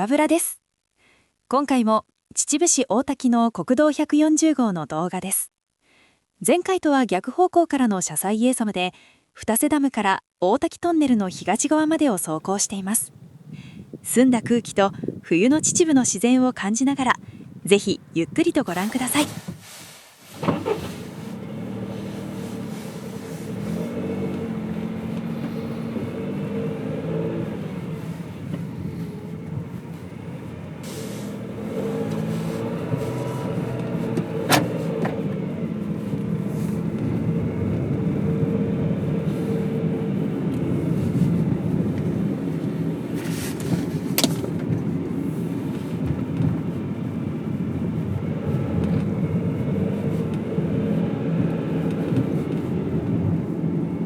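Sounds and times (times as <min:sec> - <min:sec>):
car engine hum: 0:11.0 - 0:54.0
road noise: 0:11.1 - 0:54.0.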